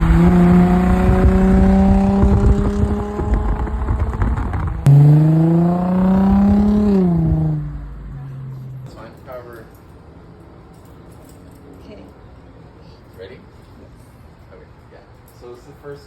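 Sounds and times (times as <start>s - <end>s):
car engine revving: 0.0s - 9.0s.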